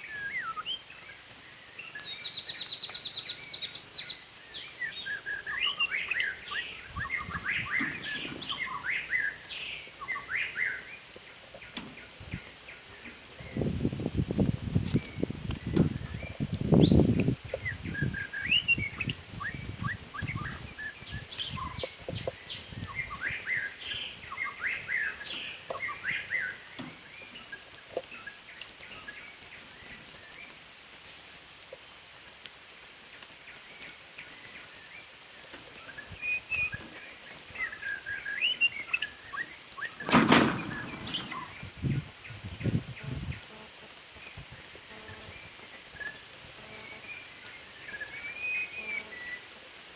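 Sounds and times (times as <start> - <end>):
bird chirps and whistles: 0.0 - 0.8, 1.9 - 4.2, 4.8 - 9.4, 15.0 - 17.2, 17.9 - 21.9, 35.5 - 36.8, 46.0 - 49.4
wings flapping: 39.8 - 41.6.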